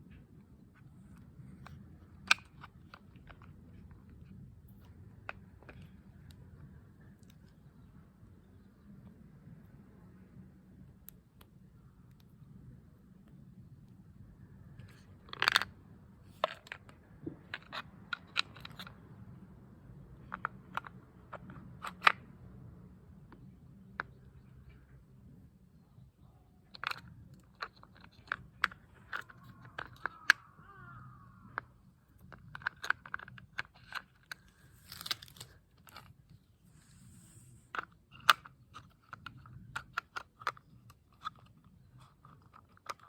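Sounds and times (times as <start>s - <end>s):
plastic parts clicking and knocking: 0.8s - 9.2s, 14.8s - 19.4s, 20.0s - 24.9s, 26.6s - 36.4s, 37.6s - 43.0s.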